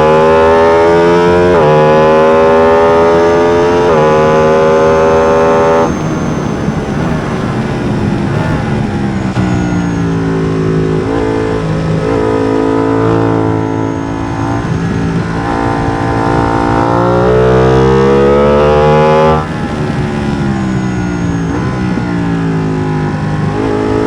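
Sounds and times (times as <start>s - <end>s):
motorcycle accelerating through gears: 0.0s - 24.0s.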